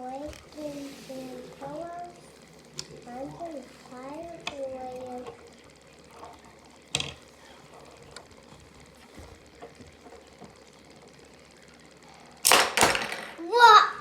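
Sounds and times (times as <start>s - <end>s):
faint clicks and taps: 0.0s - 0.8s, 2.7s - 10.8s.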